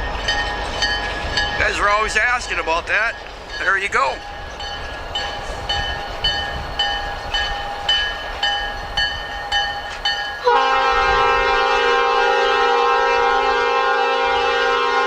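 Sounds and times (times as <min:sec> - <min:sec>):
railroad crossing bell ringing: 0:00.0 - 0:15.0
locomotive air horn blast: 0:10.4 - 0:15.0.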